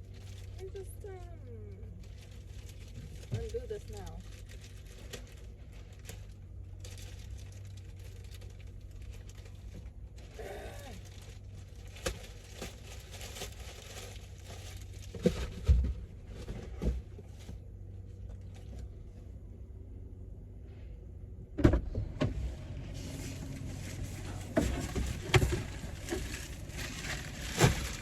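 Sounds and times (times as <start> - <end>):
packaging rustling: 23.1 - 28.0.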